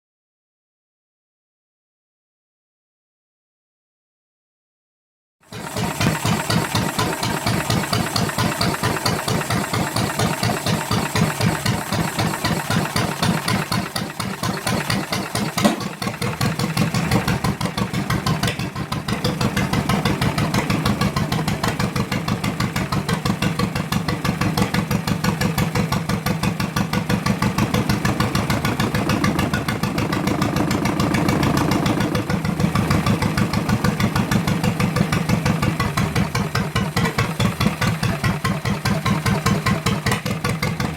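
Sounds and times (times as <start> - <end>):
boat motor running: 5.7 - 40.9
sharp knock: 15.6 - 15.9.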